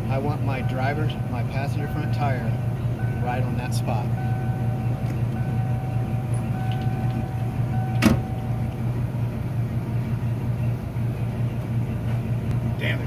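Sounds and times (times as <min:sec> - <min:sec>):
engine idling: 0:00.0 - 0:13.0
sharp thump: 0:08.0 - 0:08.3.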